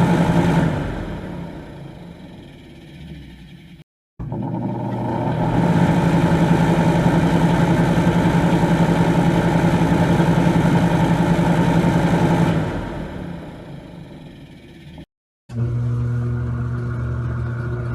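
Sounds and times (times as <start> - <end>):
electric fan motor humming: 4.2 - 12.9, 15.5 - 17.9.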